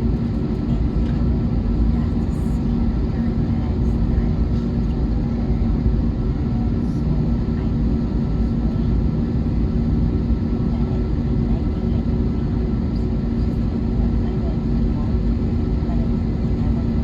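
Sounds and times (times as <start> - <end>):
airplane cabin noise: 0.0 - 17.0.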